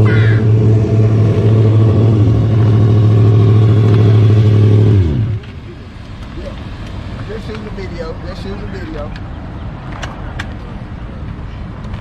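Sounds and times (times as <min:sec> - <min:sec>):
hot rod engine winding down: 0:00.0 - 0:05.4.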